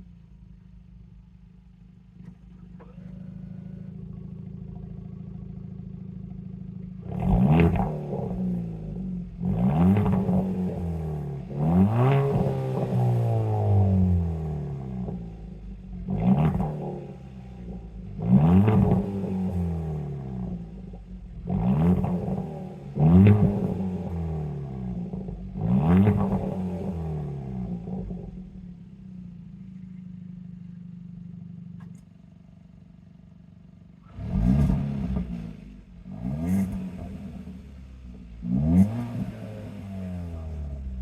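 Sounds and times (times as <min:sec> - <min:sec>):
car engine revving and idling: 0:00.0 - 0:41.0.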